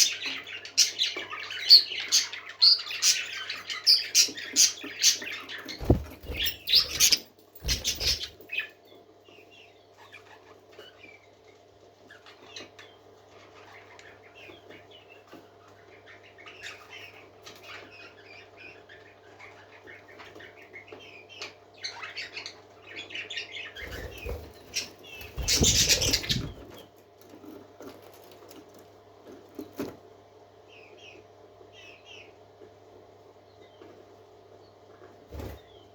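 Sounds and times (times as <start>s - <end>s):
faint bird chirping: 0.0s - 35.9s
parakeets flapping wings: 5.3s - 8.4s, 23.8s - 28.8s
steady low hum: 5.3s - 8.4s, 23.6s - 27.3s.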